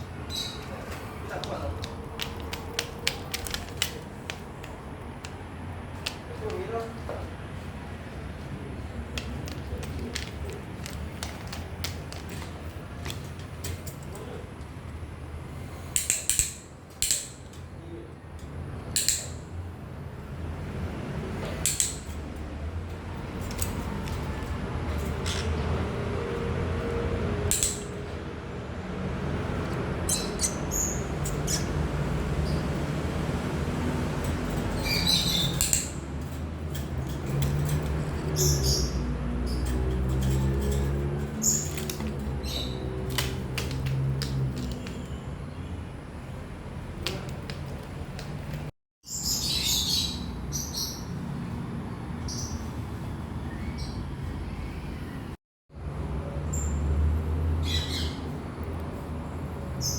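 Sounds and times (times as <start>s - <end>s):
parrot squeaks and clicks: 30.1s - 31.8s, 34.6s - 36.0s.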